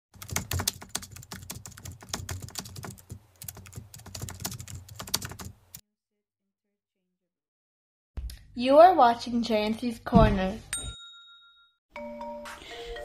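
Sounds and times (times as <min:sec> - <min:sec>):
rapid irregular clicking and tapping: 0:00.2 - 0:05.6.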